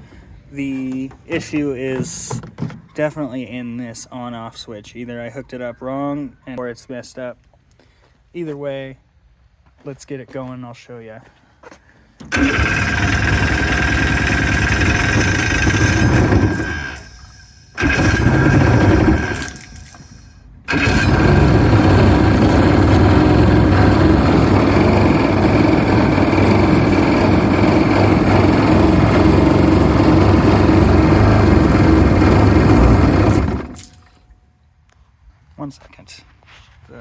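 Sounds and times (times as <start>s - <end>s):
jet ski engine running: 12.3s - 17.2s, 17.8s - 19.8s, 20.7s - 33.8s.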